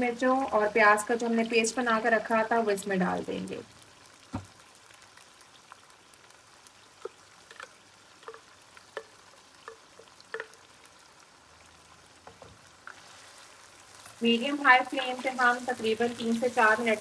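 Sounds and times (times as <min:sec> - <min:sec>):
oil sizzling: 0:00.0 - 0:17.0
paste splatting and popping in oil: 0:06.9 - 0:11.0.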